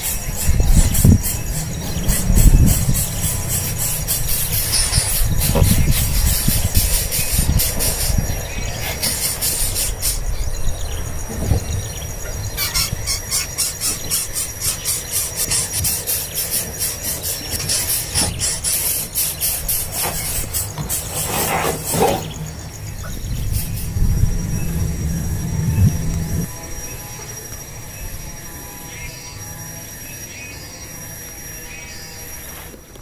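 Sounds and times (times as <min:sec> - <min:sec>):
young birds begging calls: 0:00.0 - 0:26.5
low rumble: 0:00.3 - 0:07.6, 0:22.4 - 0:26.5.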